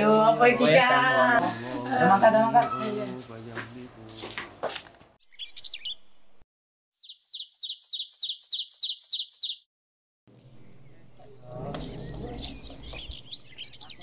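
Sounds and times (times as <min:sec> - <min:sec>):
songbird chirping: 0:05.2 - 0:06.4, 0:07.0 - 0:09.7, 0:10.3 - 0:14.0.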